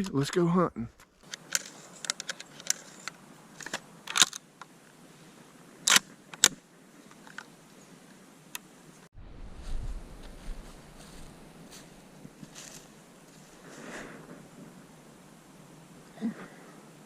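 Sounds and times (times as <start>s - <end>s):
handling clicks and knocks: 1.0s - 4.4s
low wind-like rumble: 9.1s - 16.0s.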